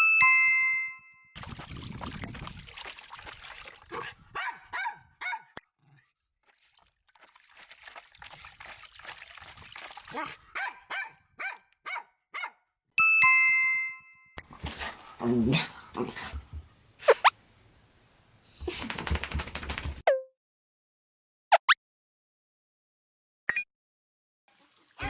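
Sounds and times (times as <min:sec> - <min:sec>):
small dog yipping: 0:04.4 - 0:05.6, 0:10.6 - 0:12.6
bright two-note chime: 0:13.0 - 0:14.3.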